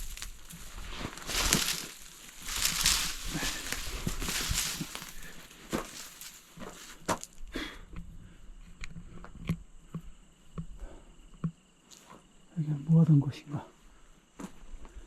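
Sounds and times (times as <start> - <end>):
leaves rustling: 0.0 - 7.4
twigs snapping: 0.0 - 7.4
footsteps through brush: 0.0 - 7.5
faint insect calls: 0.0 - 15.0.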